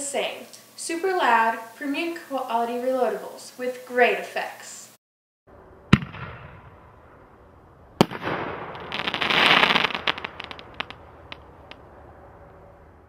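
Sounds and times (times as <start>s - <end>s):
firework launch bang: 5.9s - 7.2s, 8.0s - 11.5s
firework crackling and pops: 8.0s - 11.8s
firework shell break: 8.0s - 11.8s.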